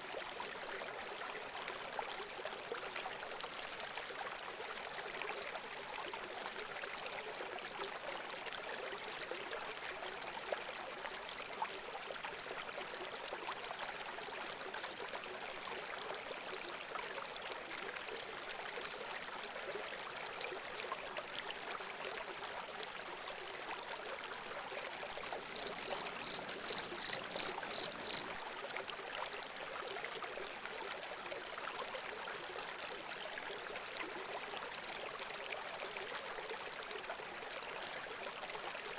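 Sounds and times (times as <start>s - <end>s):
running water: 18.0s - 37.1s
bird chirping: 25.2s - 28.3s.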